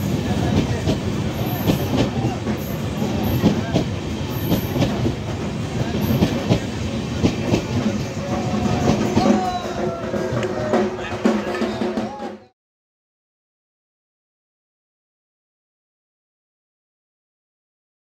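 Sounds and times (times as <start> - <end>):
wheels clacking over rail joints: 0.0 - 12.0
train rumbling on rails: 0.0 - 12.5.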